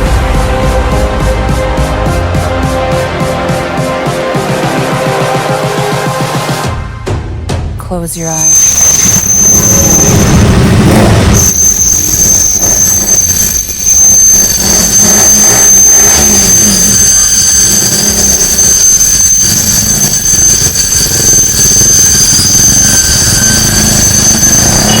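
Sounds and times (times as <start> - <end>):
loud motorcycle engine revving: 9.1 - 13.8, 14.4 - 25.0.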